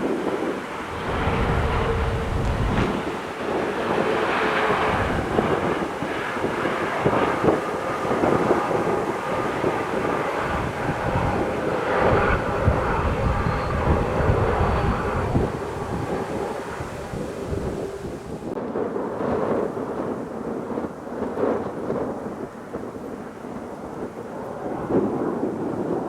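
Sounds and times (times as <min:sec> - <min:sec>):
jet engines rushing: 0:00.0 - 0:18.7
wind buffeting microphone: 0:00.0 - 0:26.0.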